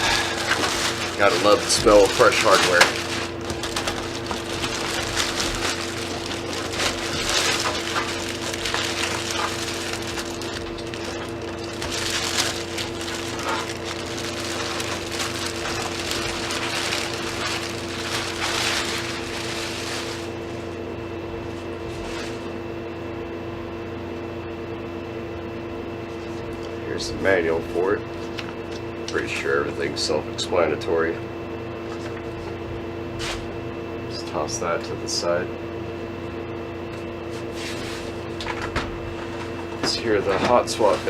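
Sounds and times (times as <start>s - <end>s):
packaging rustling and crinkling: 0.0s - 20.5s, 39.2s - 41.0s
steady low hum: 0.0s - 41.0s.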